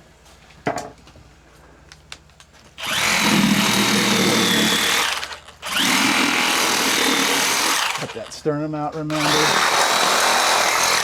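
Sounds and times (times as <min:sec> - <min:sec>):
power saw cutting bone: 0:02.8 - 0:08.4, 0:09.0 - 0:11.0.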